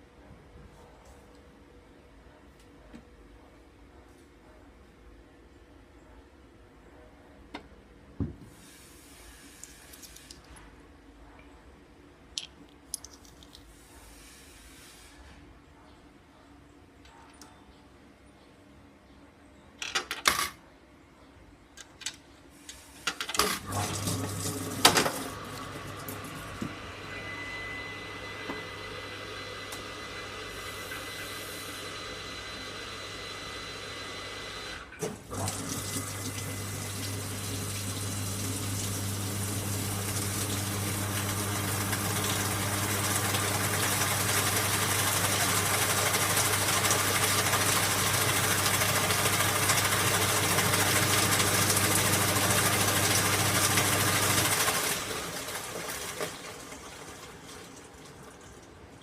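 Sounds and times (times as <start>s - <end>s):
water rushing into washing machine: 23.4s - 58.9s.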